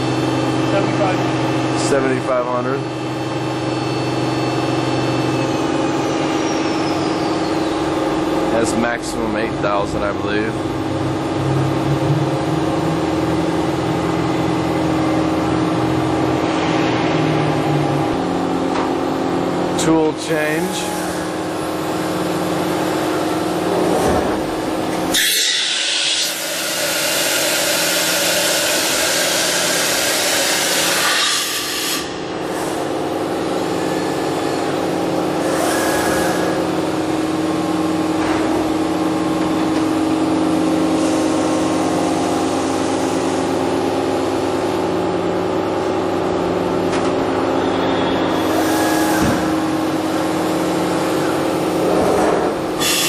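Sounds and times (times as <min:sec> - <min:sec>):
pulsing low drone: 0:10.1 - 0:18.6
machine humming with held tone: 0:10.5 - 0:18.8.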